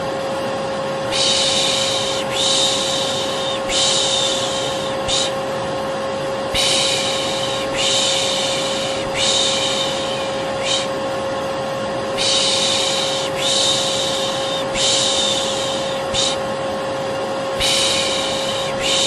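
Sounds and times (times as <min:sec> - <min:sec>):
vacuum cleaner running: 0:00.0 - 0:19.0
person shushing: 0:01.1 - 0:05.4, 0:06.5 - 0:11.0, 0:12.2 - 0:16.5, 0:17.6 - 0:19.0.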